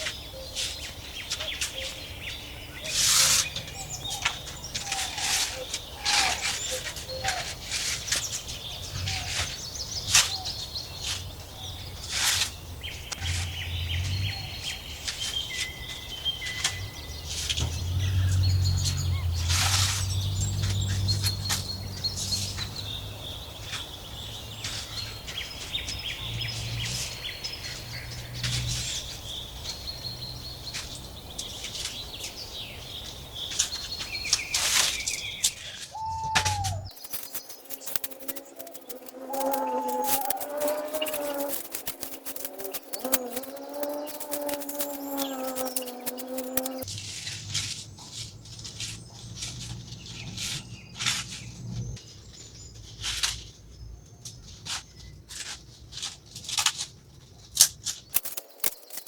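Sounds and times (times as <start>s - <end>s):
birds chirping and calling: 0.0s - 46.9s
sharp clicks: 36.4s - 46.9s, 57.6s - 59.0s.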